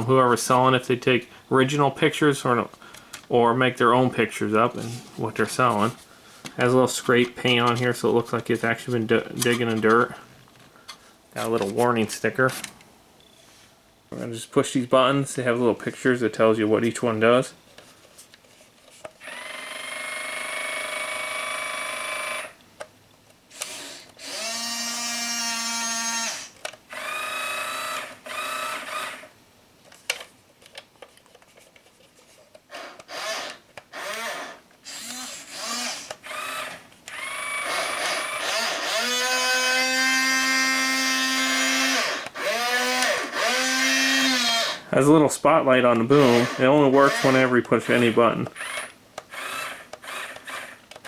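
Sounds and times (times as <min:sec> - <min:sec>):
electric gear motors whining: 0:23.5 - 0:29.3, 0:32.7 - 0:44.8, 0:46.1 - 0:50.8.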